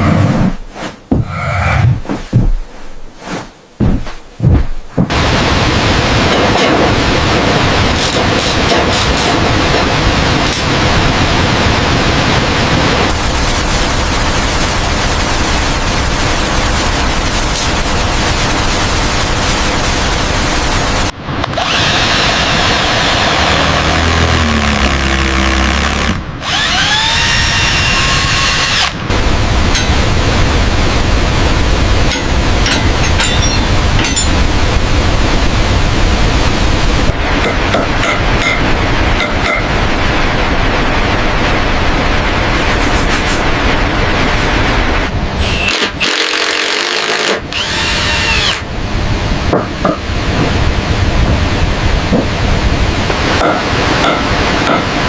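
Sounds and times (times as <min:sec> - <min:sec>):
loud rushing noise: 0:00.0 - 0:45.4
power drill whining: 0:21.5 - 0:29.0, 0:45.4 - 0:48.6
wood being sawn: 0:21.6 - 0:29.0.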